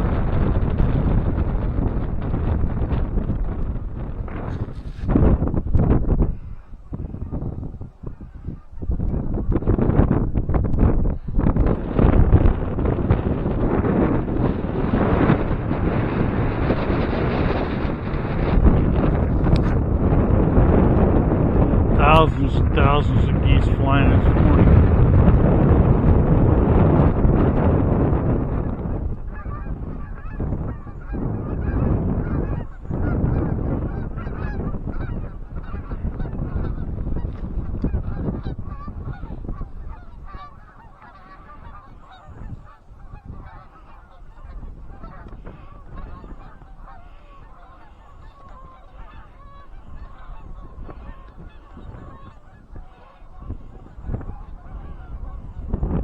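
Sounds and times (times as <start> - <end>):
wind rumbling on microphone: 0.0 - 56.0
geese honking: 6.3 - 9.5, 12.7 - 24.4, 28.5 - 55.8.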